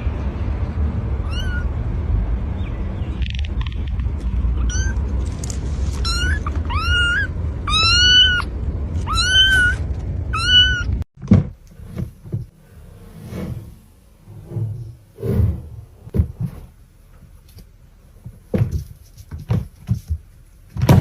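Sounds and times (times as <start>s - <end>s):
cat meowing: 1.2s - 1.7s, 6.0s - 11.0s
soft thumps: 14.5s - 16.7s.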